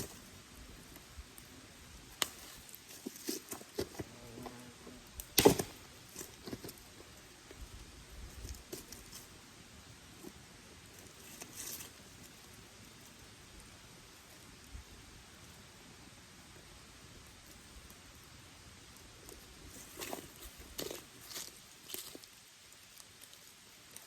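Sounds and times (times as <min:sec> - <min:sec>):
faint steady hiss: 0:00.0 - 0:24.0
wood fire crackling: 0:00.0 - 0:24.0.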